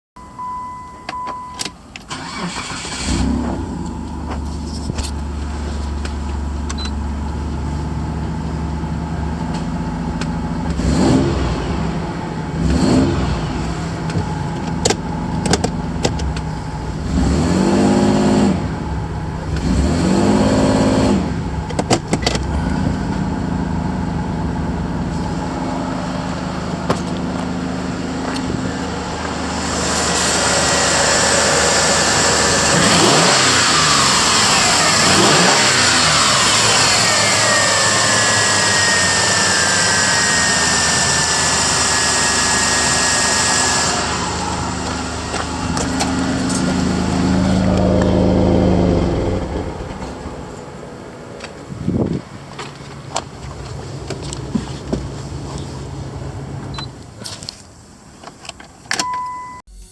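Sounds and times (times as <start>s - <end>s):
short beep: 0.2s - 1.7s, 59.0s - 59.9s
car engine starting and revving: 2.0s - 57.1s.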